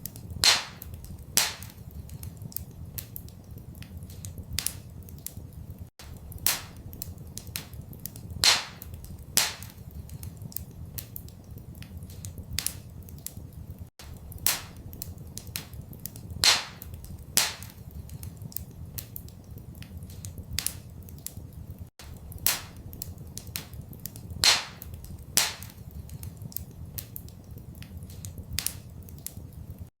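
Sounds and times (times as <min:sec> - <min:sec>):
low rumble of fire: 0:00.0 - 0:29.9
wood fire crackling and popping: 0:00.0 - 0:29.9.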